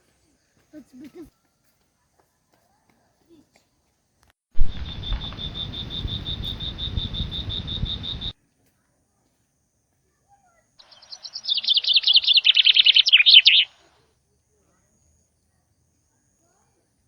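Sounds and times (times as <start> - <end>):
bird trilling: 4.6 - 8.3, 10.8 - 13.8
high chirps: 4.6 - 8.3, 10.8 - 13.8
wind rumble on microphone: 4.6 - 8.3.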